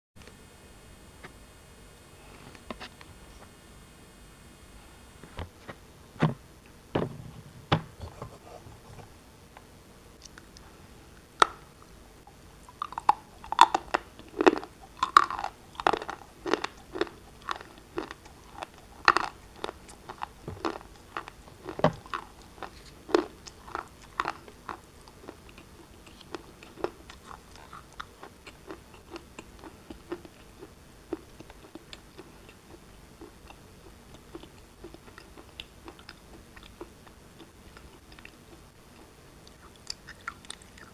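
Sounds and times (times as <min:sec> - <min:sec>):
shale being chewed crunching: 0:12.6 - 0:40.9.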